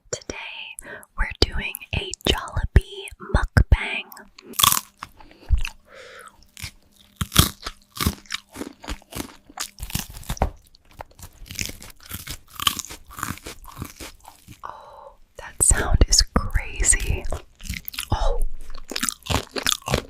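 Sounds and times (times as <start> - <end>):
crunchy food being chewed: 4.2 - 14.7, 16.4 - 20.0.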